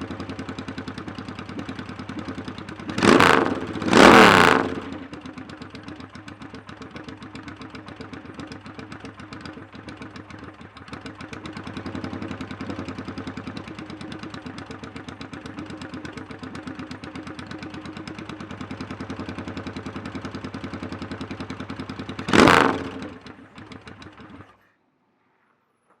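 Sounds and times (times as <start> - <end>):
motorcycle engine idling: 0.0 - 24.8.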